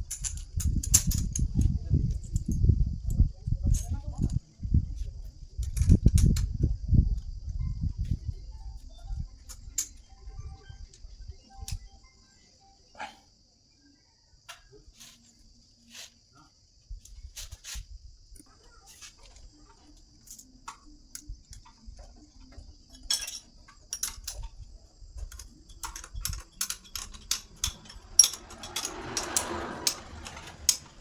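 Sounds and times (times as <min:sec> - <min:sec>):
small metal tools clicking: 0:00.0 - 0:01.7, 0:09.5 - 0:10.1, 0:20.2 - 0:31.0.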